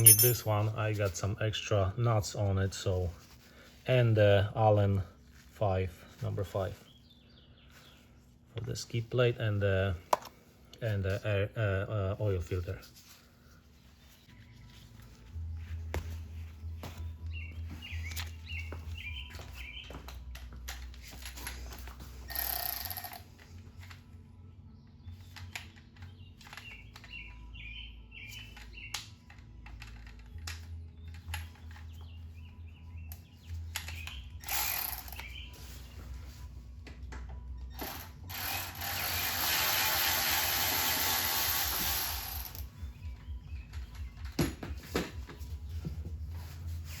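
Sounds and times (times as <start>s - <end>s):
hand tools clicking and clattering: 0.0s - 0.8s
small birds chirping: 5.9s - 8.7s, 13.4s - 20.4s, 24.7s - 29.9s, 30.6s - 36.4s, 42.7s - 46.8s.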